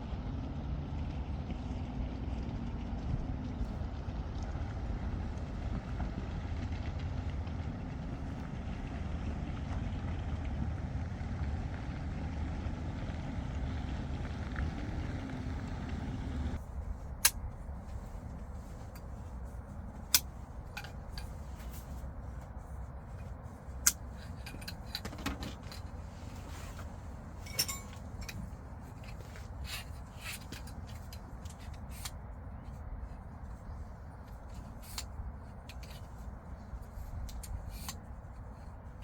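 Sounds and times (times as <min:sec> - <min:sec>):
steady low rumble: 0:02.4 - 0:39.0
clicks and knocks of objects: 0:16.8 - 0:39.0.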